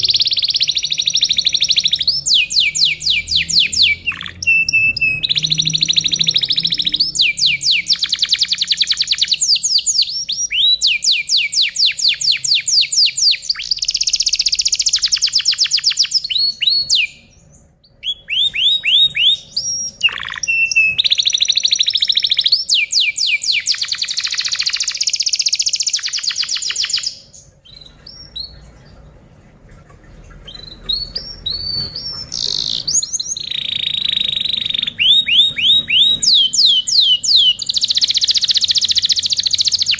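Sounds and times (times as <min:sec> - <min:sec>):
canary singing trills: 0:00.0 - 0:29.2, 0:29.9 - 0:39.9.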